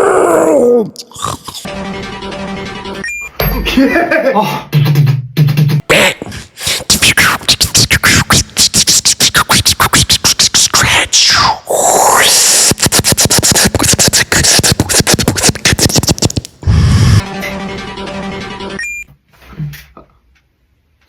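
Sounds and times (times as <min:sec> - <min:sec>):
beatboxing clicks and hits: 0:01.0 - 0:01.7, 0:04.7 - 0:17.2
sweeping scratch-like sound: 0:12.7 - 0:18.8.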